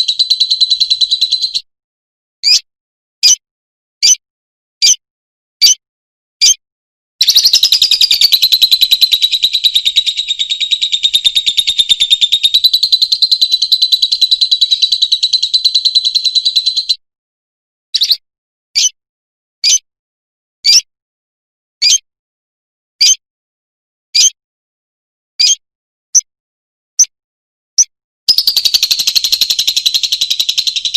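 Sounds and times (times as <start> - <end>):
lovebird chattering trill: 0.0 - 1.7, 7.2 - 17.0, 18.0 - 18.2, 28.3 - 30.9
lovebird sharp chirps: 0.0 - 1.7, 2.4 - 3.4, 4.8 - 5.0, 5.6 - 5.8, 6.4 - 6.6, 7.2 - 17.0, 18.0 - 18.2, 18.8 - 19.0, 19.6 - 19.9, 20.6 - 20.9, 21.8 - 22.0, 23.0 - 23.2, 24.2 - 24.4, 27.8 - 30.9.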